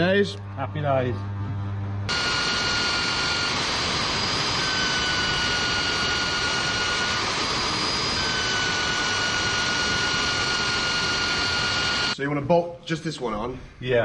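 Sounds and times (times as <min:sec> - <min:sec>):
electric power tool whining: 0:02.1 - 0:12.2.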